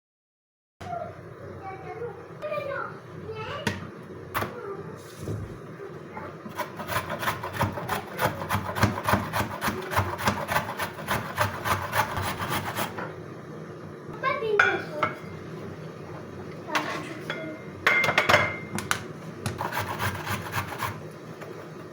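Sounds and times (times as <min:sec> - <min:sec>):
carrot grating on hand grater: 0:06.5 - 0:13.0, 0:19.5 - 0:21.0.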